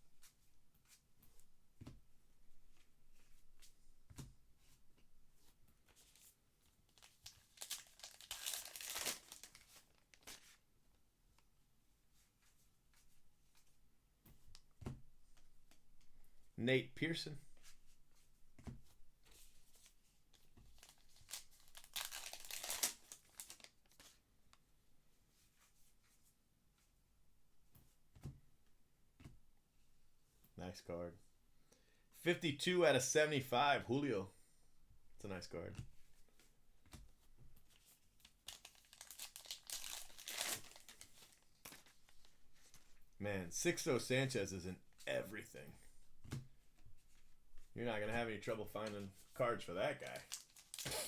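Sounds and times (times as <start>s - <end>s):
packaging rustling and crinkling: 6.0s - 10.6s, 19.7s - 24.2s, 37.7s - 43.0s, 50.0s - 51.0s.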